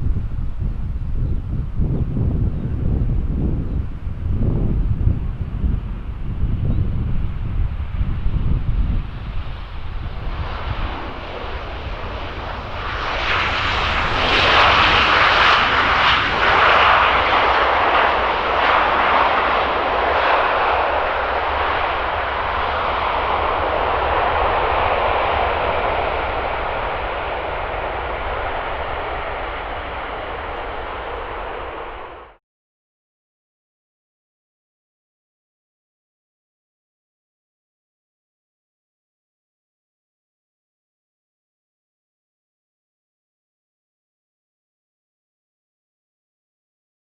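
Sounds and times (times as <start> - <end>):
aircraft engine passing: 0.0 - 32.4
wind rumbling on microphone: 0.0 - 32.4.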